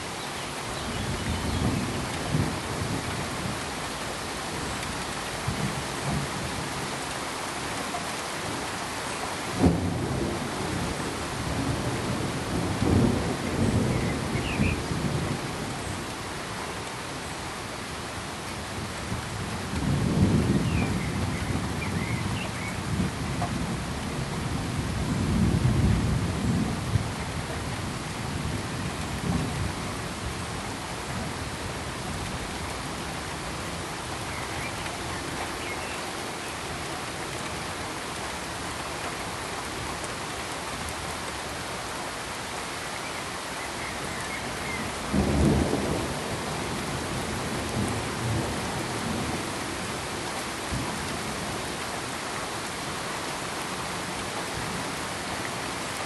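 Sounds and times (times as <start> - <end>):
steady rain hiss: 0.0 - 56.0
thunder rumbling: 44.9 - 49.5.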